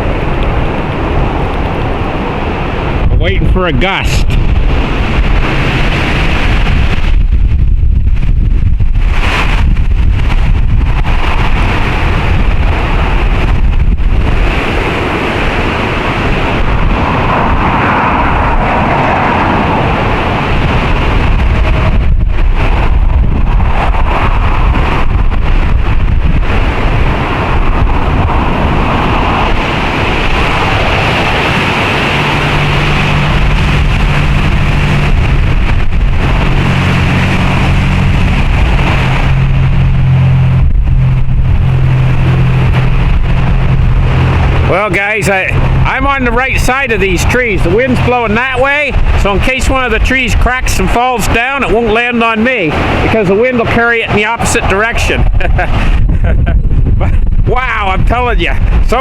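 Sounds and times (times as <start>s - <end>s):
wind buffeting microphone: 0.0s - 59.0s
wind rushing through trees: 0.0s - 59.0s
low steady hum: 19.6s - 50.2s.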